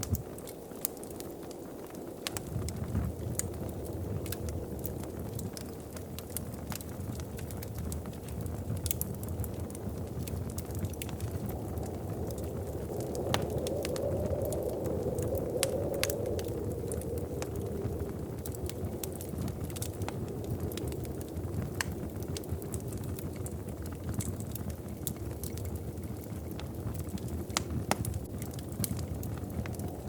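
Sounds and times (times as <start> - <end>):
wood fire crackling: 0.0 - 30.0
low rush: 11.0 - 21.3.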